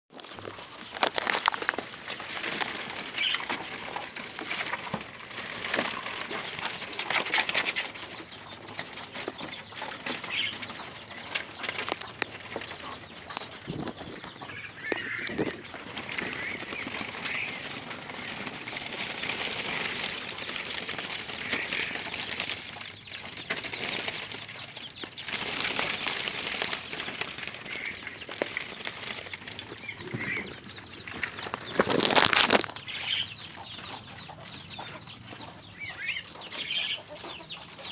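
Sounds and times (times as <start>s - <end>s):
bird wings flapping: 15.0s - 30.4s.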